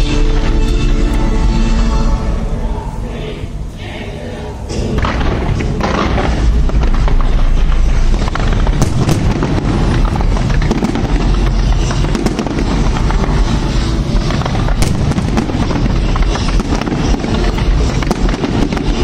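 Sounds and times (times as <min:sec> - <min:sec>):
fireworks booming and crackling: 0:04.7 - 0:19.0
sharp fireworks cracks: 0:04.7 - 0:19.0.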